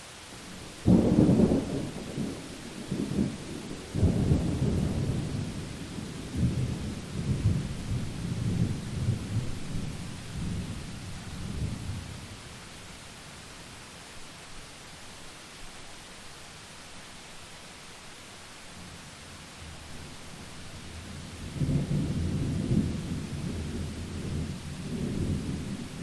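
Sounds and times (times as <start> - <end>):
rain hissing: 0.0 - 26.0
thunder clap and rumbles: 0.9 - 10.8, 21.4 - 26.0.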